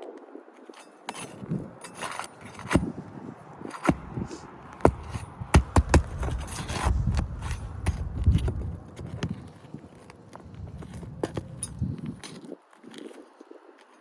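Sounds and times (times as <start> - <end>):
pry bar scraping shingles: 0.6 - 13.2
hammer knocks: 3.8 - 8.6.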